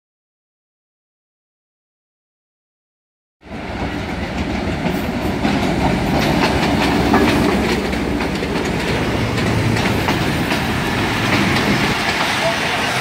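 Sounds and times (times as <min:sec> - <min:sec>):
diesel locomotive engine running: 0:03.5 - 0:13.0
train wheels clicking over rail joints: 0:03.6 - 0:13.0.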